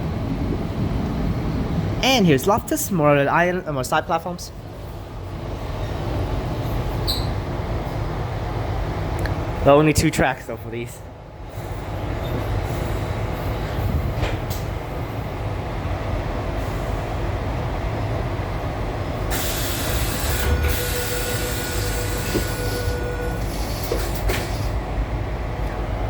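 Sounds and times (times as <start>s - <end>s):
train rumbling inside carriage: 0.0s - 26.0s
hiss: 19.3s - 22.8s.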